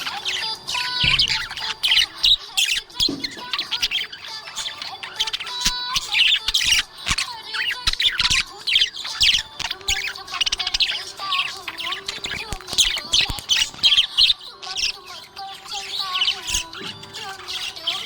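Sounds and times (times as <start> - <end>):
budgerigars chirping and warbling: 0.0 - 18.0.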